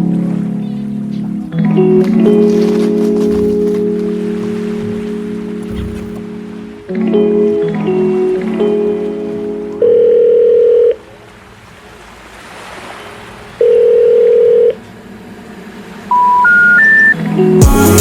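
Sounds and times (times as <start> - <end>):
music: 0.0 - 9.8, 17.1 - 18.0
telephone ringback tone: 9.8 - 11.0, 13.6 - 14.8, 16.1 - 17.2
short rising telephone tones: 13.6 - 14.8, 16.1 - 17.2.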